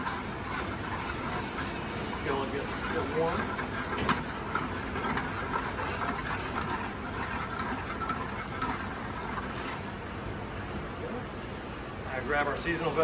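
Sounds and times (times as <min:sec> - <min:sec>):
oil and butter hissing in skillet: 0:00.0 - 0:09.5
kitchen hum: 0:00.0 - 0:13.0.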